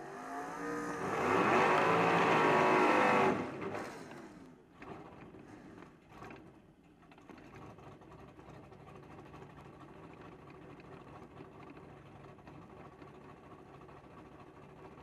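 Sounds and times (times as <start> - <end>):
car engine idling: 4.4 - 15.0.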